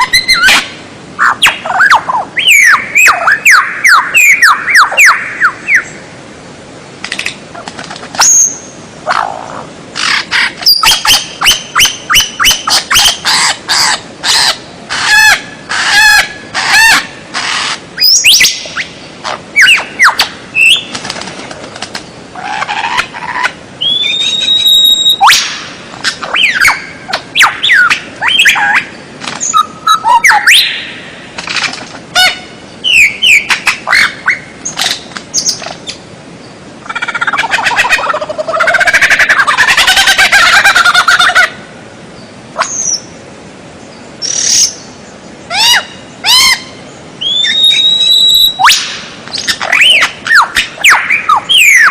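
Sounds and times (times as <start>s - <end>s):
songbird whistling song: 0.0s - 6.0s, 8.2s - 8.8s, 10.0s - 15.4s, 18.0s - 21.0s, 23.8s - 31.0s, 32.2s - 36.0s, 42.6s - 43.1s, 45.5s - 51.9s.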